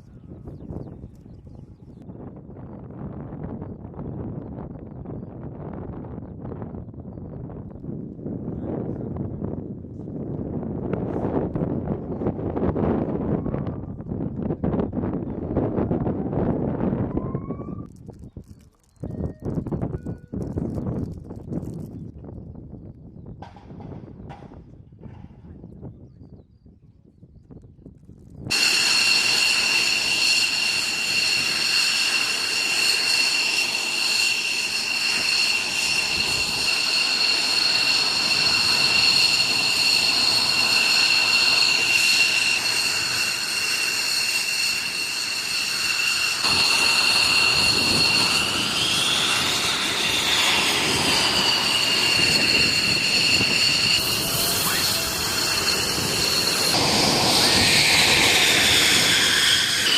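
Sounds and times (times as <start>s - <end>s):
jet engine whine: 28.5s - 59.9s
rushing noise: 28.5s - 59.9s.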